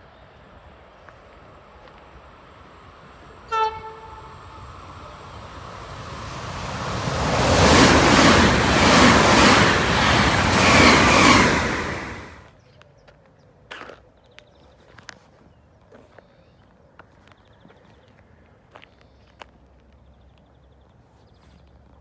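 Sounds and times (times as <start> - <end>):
train passing at speed: 0.1 - 12.5
wheels over rail joints: 1.5 - 12.5
train horn blast: 3.3 - 7.1.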